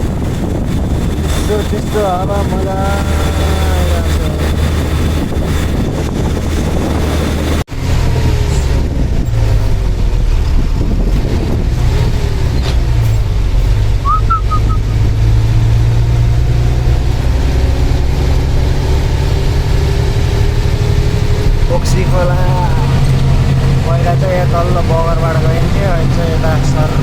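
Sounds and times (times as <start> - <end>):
truck engine rumbling: 0.0 - 27.0.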